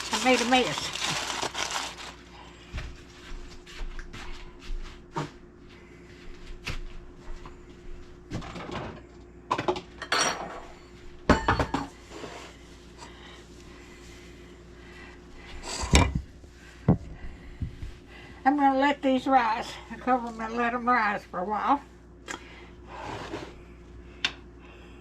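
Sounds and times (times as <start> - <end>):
pans and dishes clattering: 11.3 - 12.0.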